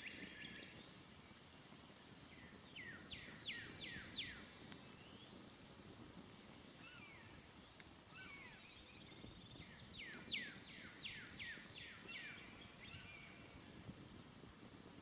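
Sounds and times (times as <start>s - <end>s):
campfire crackling: 0.0s - 15.0s
songbird singing falling notes: 8.4s - 13.4s.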